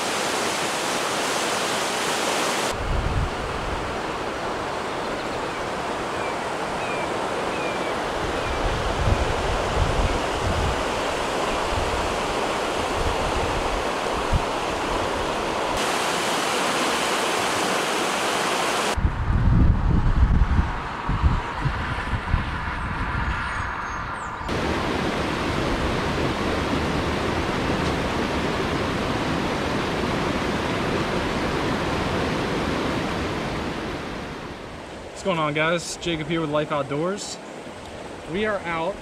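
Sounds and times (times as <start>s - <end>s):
water rushing in creek: 0.0s - 19.0s, 24.5s - 39.0s
wind gusting on microphone: 2.5s - 17.8s, 18.7s - 39.0s.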